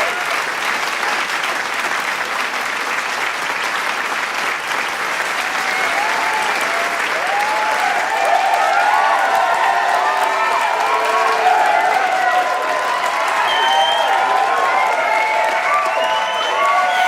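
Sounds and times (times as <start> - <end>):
crowd applauding: 0.0 - 17.0
shouts and whoops: 5.4 - 17.0.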